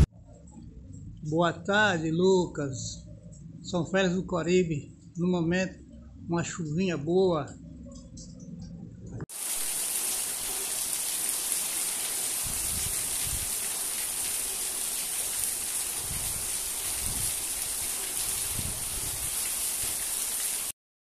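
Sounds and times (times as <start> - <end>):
dull low rumbles: 0.0 - 9.3
rain hissing: 9.3 - 20.8
water overflowing and splashing: 9.3 - 20.8.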